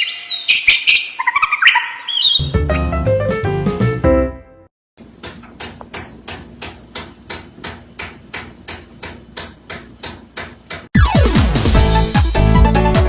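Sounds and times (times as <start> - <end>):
electronic dance music: 11.0 - 13.0.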